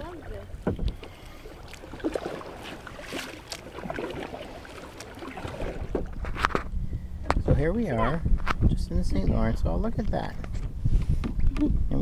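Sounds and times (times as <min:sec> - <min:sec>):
water sloshing and dripping: 0:00.0 - 0:06.7.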